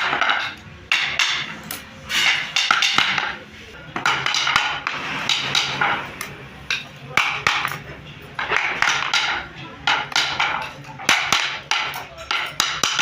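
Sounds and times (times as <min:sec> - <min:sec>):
hand tools knocking wood: 0:08.4 - 0:13.0.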